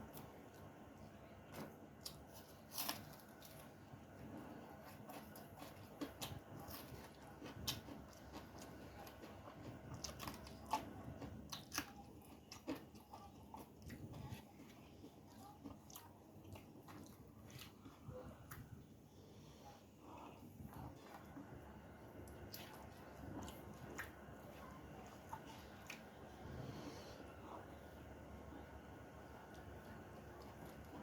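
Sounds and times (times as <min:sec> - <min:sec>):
person chewing crunchy food: 0:01.5 - 0:18.7, 0:20.0 - 0:26.8.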